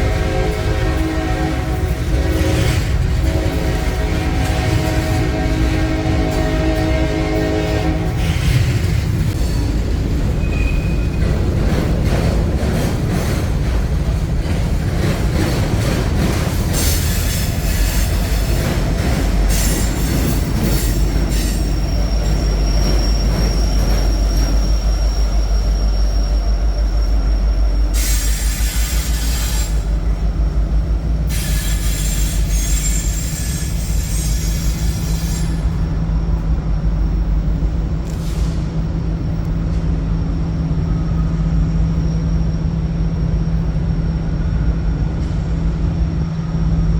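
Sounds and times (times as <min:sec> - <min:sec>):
train wheels rumbling on rail: 0:00.0 - 0:46.9
high wheel squeal: 0:10.4 - 0:11.3, 0:19.5 - 0:30.0, 0:31.3 - 0:35.9.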